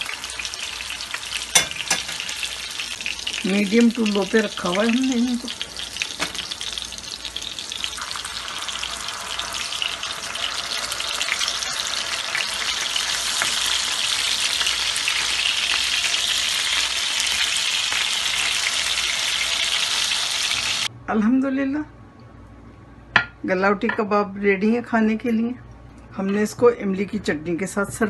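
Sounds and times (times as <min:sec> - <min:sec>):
kebabs sizzling in oil: 0:00.0 - 0:20.9.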